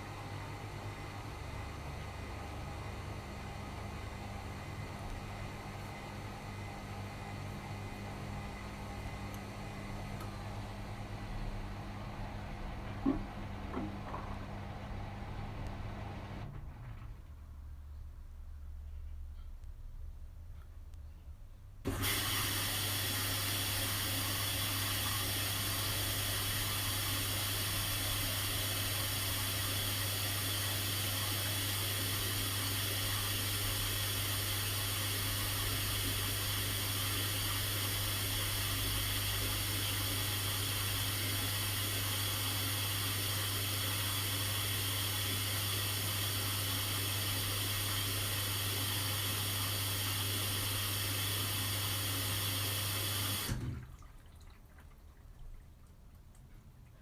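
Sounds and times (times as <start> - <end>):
low mains hum: 0.0 - 57.0
rushing water in washing machine: 21.9 - 56.5.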